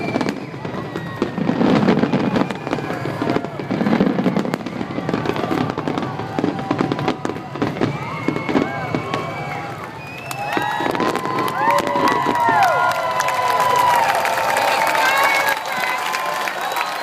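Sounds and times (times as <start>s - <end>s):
firework booms: 0.0s - 9.8s, 10.5s - 12.7s
crackling firework pops: 0.0s - 12.7s.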